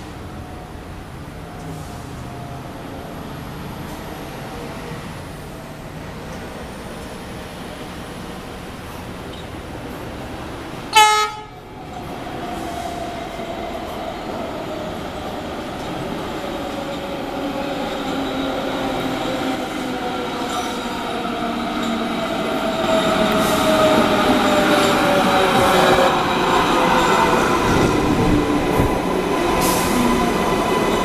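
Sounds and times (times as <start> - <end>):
train approaching with falling whine: 0.0 - 31.0
train horn blast: 10.9 - 11.6.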